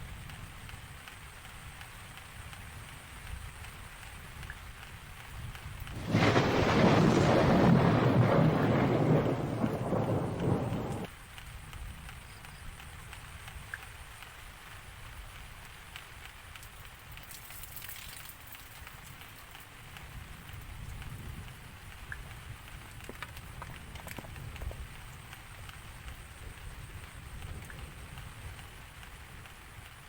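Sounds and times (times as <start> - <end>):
low steady background rumble: 0.0 - 30.0
rain: 0.0 - 30.0
thunderclap rumbling: 5.8 - 11.1, 20.0 - 30.0.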